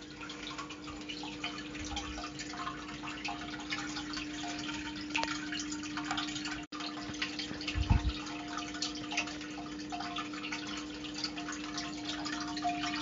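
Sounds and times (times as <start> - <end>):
underwater crackle and dripping: 0.0 - 13.0
steady low hum: 0.1 - 13.0
low thump: 7.8 - 8.2.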